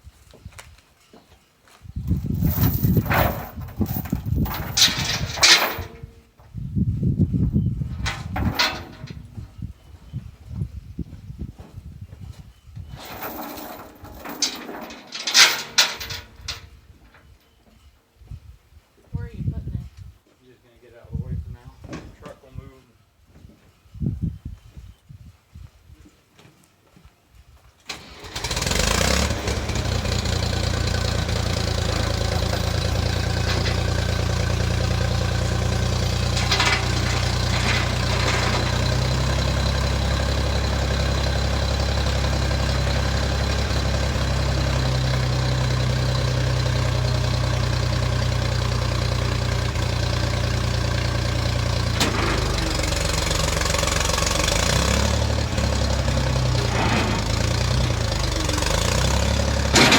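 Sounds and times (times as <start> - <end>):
tractor engine starting and idling: 2.1 - 6.1, 7.5 - 9.8, 12.8 - 17.3, 27.9 - 59.9.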